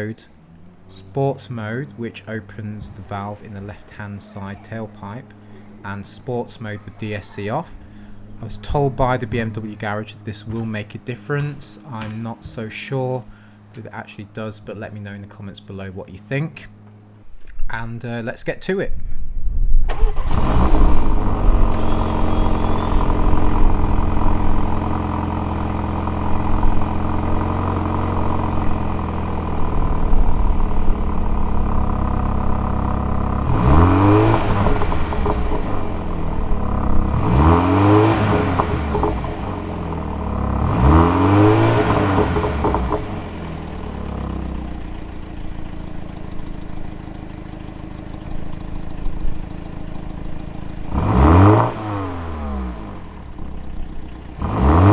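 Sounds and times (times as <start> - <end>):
car engine starting and idling: 0.0 - 17.6, 19.7 - 54.9
engine revving: 19.9 - 45.6, 50.7 - 53.5, 54.3 - 54.9
exhaust pops: 33.0 - 39.7, 41.6 - 43.4.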